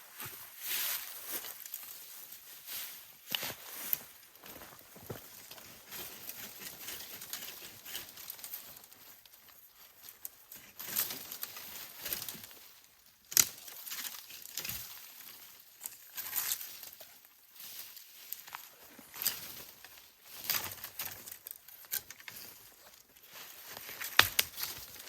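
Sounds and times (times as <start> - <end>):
twig snapping: 23.9 - 25.0.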